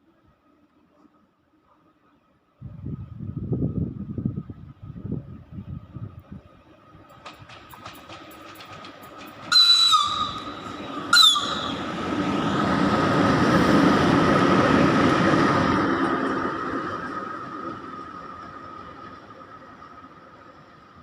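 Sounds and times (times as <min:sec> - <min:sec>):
locomotive passing rumble: 0:02.6 - 0:21.0
locomotive signal whistle: 0:09.5 - 0:12.0.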